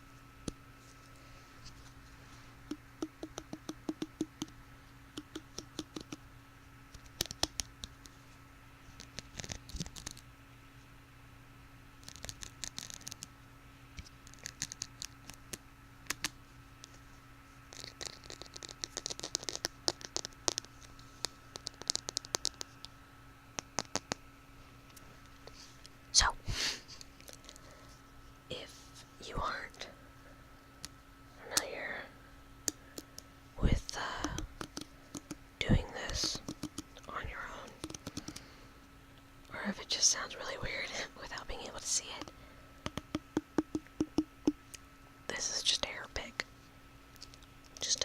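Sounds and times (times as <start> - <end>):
scratchy rasps: 17.7 - 20.6.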